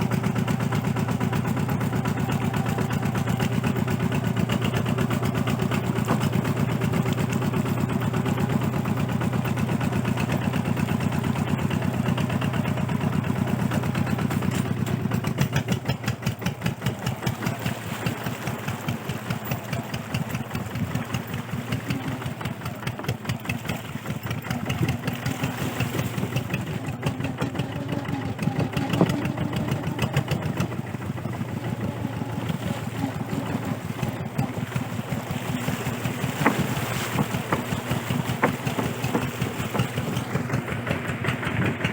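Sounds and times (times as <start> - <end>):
diesel engine chugging: 0.0 - 41.9.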